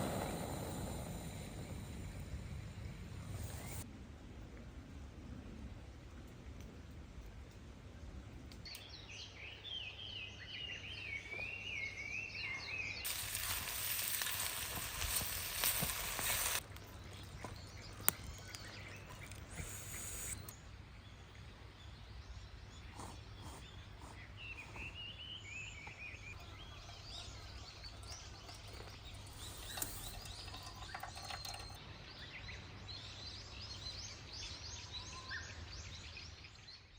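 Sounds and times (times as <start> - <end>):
food sizzling in a hot pan: 13.1 - 16.6
birds singing: 15.8 - 36.9.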